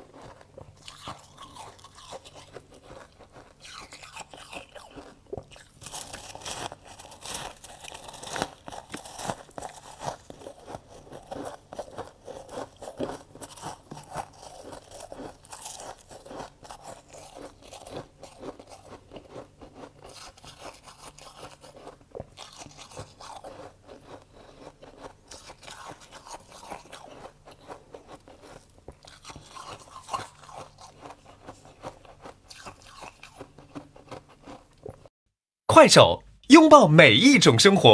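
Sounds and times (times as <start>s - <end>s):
frost being crunched by chewing: 0.0s - 19.3s.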